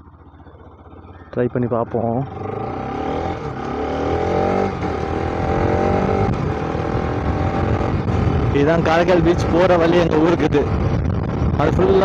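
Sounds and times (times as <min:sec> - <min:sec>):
low riding rumble: 0:00.0 - 0:12.0
motorcycle engine accelerating: 0:00.0 - 0:12.0.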